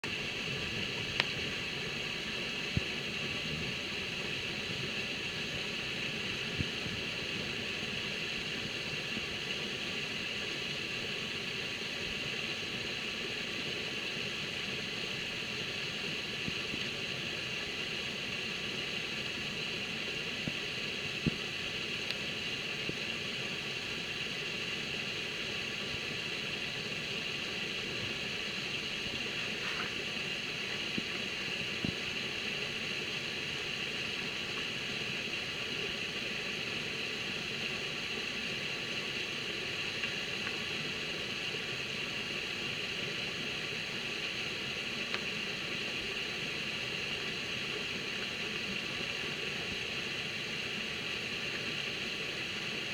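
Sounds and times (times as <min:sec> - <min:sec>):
faint ticks: 0:00.9 - 0:01.4, 0:39.9 - 0:40.6, 0:45.1 - 0:45.3.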